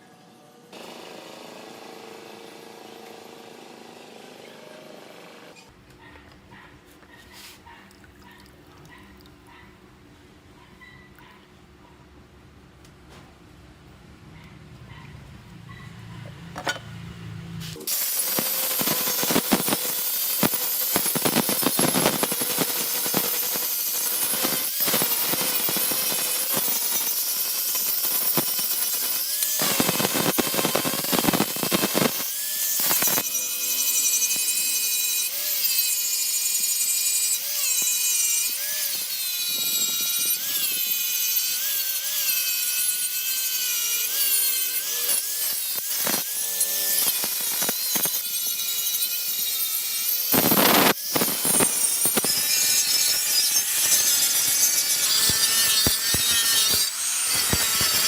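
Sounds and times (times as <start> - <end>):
tool grinding steel: 17.6 - 58.0.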